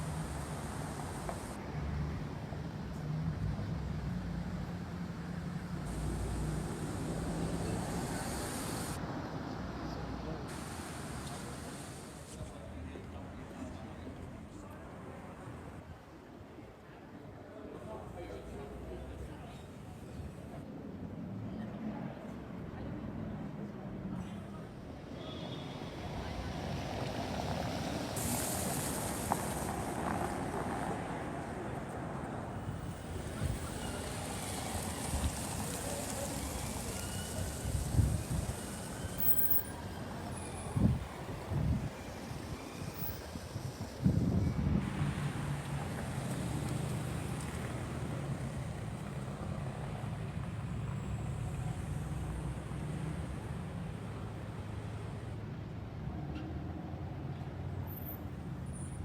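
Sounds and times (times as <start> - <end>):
road traffic noise: 0.0 - 59.0
wind on microphone: 37.5 - 38.6, 43.6 - 45.1.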